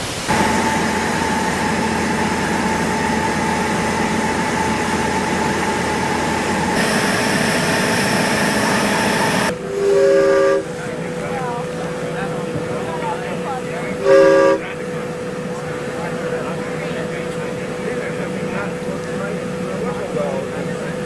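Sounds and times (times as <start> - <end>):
steam hissing: 0.0 - 21.0
steam whistle toot: 6.8 - 10.8, 14.0 - 14.8.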